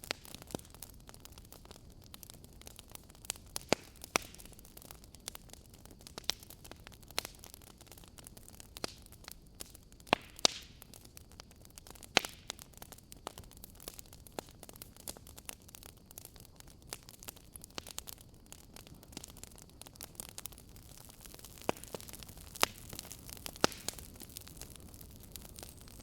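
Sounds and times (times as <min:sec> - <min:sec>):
fireplace crackling: 0:09.6 - 0:26.0.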